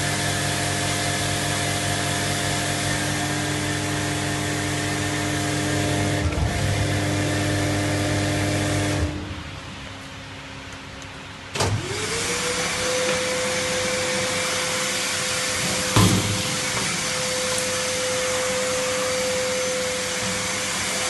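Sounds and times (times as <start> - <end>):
vacuum motor whine: 0.0 - 9.4, 11.6 - 21.0.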